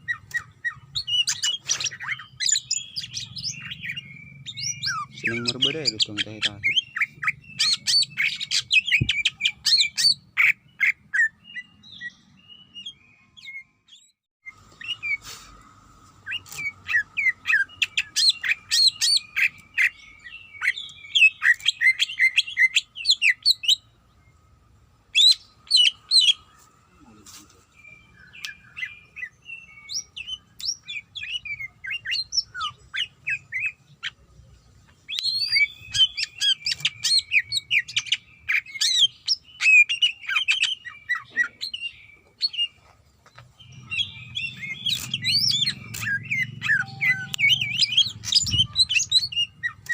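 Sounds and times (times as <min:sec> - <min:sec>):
bird chattering song: 0:00.0 - 0:15.5, 0:16.2 - 0:24.0, 0:25.1 - 0:49.9
faint high hum: 0:46.6 - 0:48.2.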